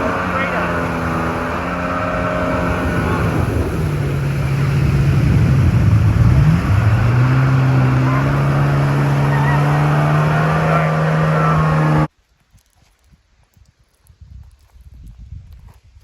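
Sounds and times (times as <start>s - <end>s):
jet ski engine running: 0.0s - 12.1s
rushing water: 0.0s - 12.1s.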